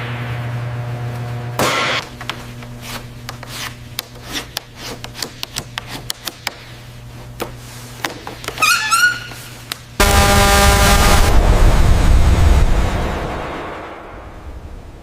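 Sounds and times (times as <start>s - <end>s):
steady low hum: 0.0s - 8.6s, 9.3s - 15.0s
scraping rub: 2.4s - 6.1s.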